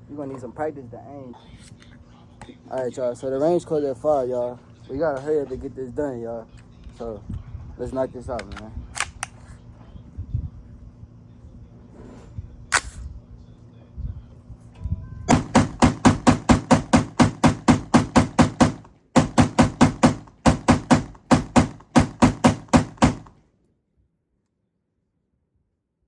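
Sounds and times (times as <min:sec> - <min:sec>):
rapid pistol shots: 0:15.3 - 0:23.4.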